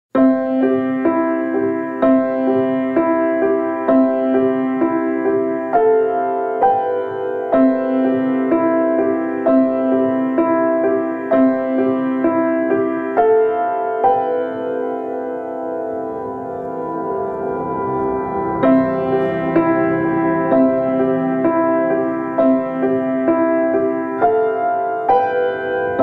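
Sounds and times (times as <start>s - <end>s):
slow solo piano music: 0.1s - 26.0s.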